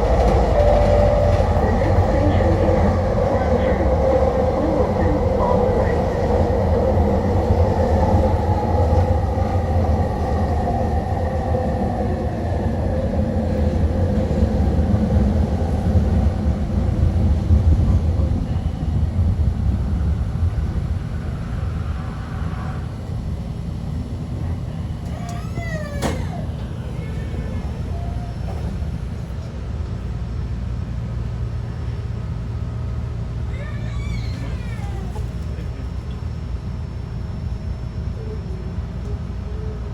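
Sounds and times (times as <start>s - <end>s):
train wheels rumbling on track: 0.0s - 39.9s
train whine: 0.0s - 39.9s.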